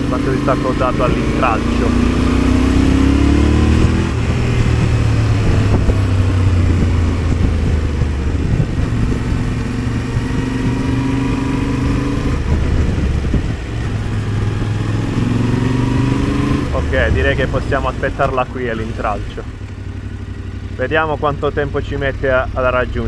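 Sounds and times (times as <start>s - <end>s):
motorcycle engine running: 0.0s - 23.0s
wind rush on microphone: 1.1s - 18.5s.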